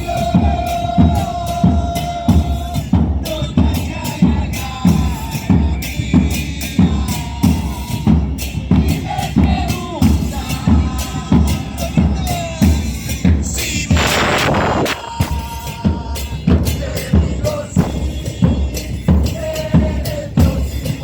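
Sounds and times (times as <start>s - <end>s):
bass drum strokes: 13.2s - 19.4s
snare drum hits: 13.9s - 15.4s, 17.8s - 18.2s.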